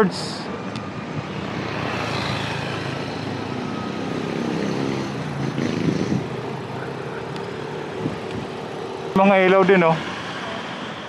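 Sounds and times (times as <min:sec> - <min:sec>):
road and wind noise: 0:00.0 - 0:11.0
motorcycle engine running: 0:04.2 - 0:08.6.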